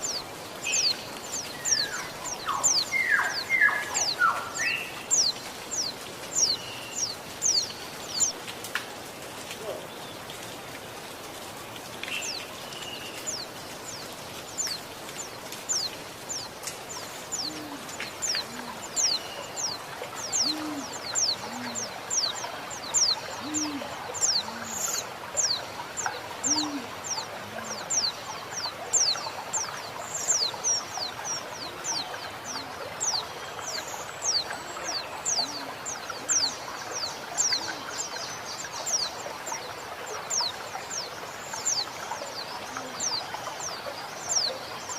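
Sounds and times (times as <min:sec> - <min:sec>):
flowing water hiss: 0:00.0 - 0:44.9
dove cooing: 0:17.4 - 0:19.0, 0:20.3 - 0:22.0, 0:23.3 - 0:25.0, 0:26.4 - 0:27.9, 0:35.4 - 0:35.8.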